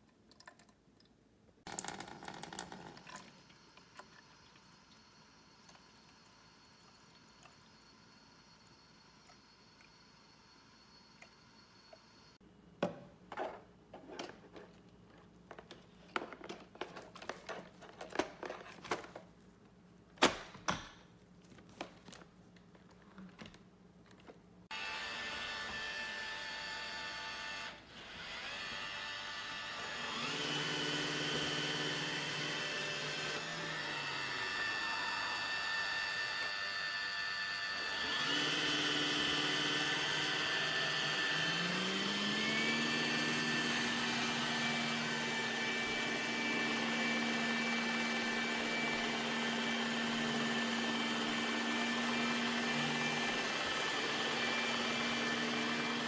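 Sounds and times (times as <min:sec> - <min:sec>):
robot vacuum motor hum and whine: 0:24.7 - 0:56.0.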